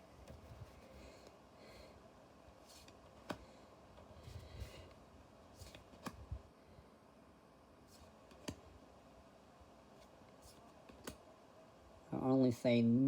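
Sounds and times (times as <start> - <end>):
faint fan hiss: 0.0 - 13.0
cards and wrappers rustling: 5.6 - 6.3.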